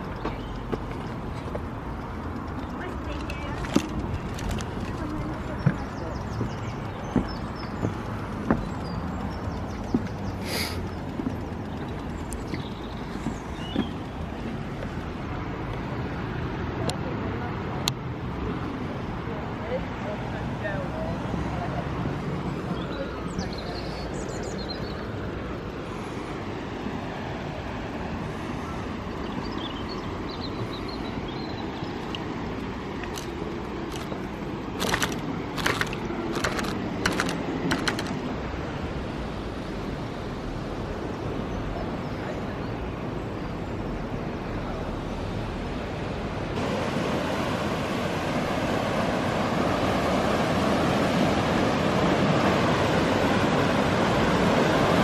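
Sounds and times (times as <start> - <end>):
outdoor background noise: 0.0 - 55.0
sharp clicks: 34.8 - 38.3.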